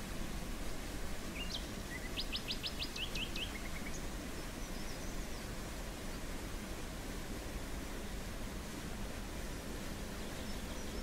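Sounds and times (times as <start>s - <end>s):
songbird singing: 1.3s - 6.2s, 10.1s - 11.0s.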